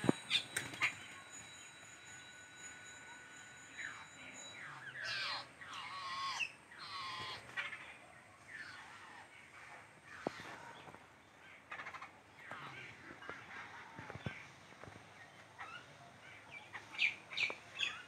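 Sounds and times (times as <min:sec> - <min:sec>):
babblers calling harshly: 0:05.0 - 0:07.8.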